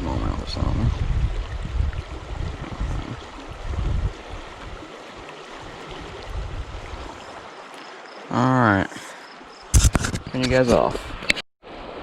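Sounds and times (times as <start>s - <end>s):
river water rushing: 1.3s - 9.6s.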